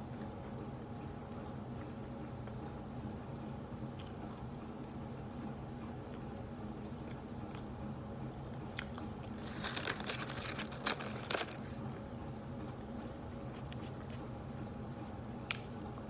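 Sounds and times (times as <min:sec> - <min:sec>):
steady low hum: 0:00.0 - 0:16.0
person chewing crunchy food: 0:08.8 - 0:12.0
crunchy bites and crackles: 0:08.8 - 0:12.1.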